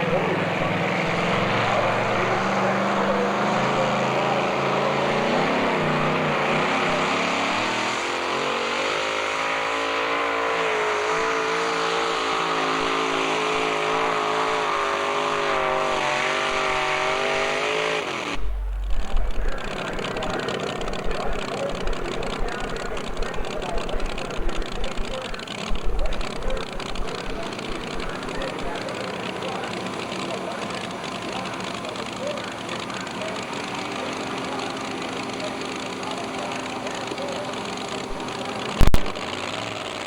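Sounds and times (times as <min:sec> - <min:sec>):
vehicle engine running hard: 0:00.0 - 0:40.0
loud low thumps: 0:18.4 - 0:24.2.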